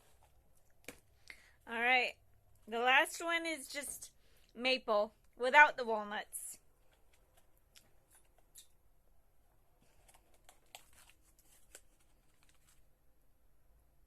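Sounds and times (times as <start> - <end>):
packaging rustling and clicks: 9.8 - 12.9.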